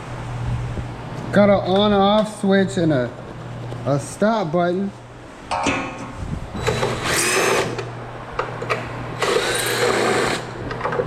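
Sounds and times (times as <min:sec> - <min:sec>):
power drill running: 0:06.6 - 0:07.9, 0:08.7 - 0:10.6.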